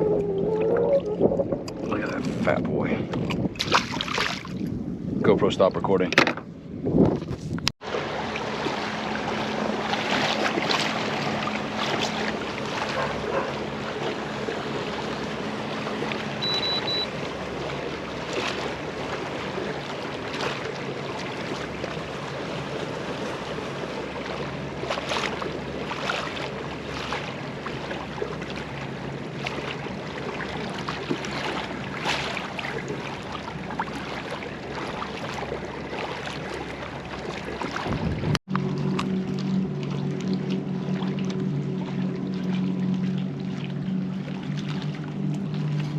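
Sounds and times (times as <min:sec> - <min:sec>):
water sloshing and splashing: 0:00.0 - 0:05.0, 0:05.9 - 0:45.9
wind on microphone: 0:00.0 - 0:07.7, 0:37.7 - 0:38.4.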